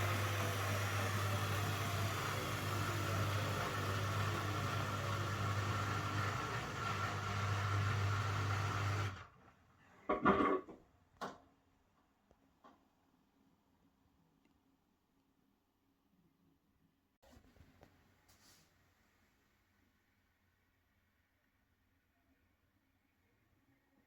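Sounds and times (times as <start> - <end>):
washing machine humming: 0.0 - 9.3.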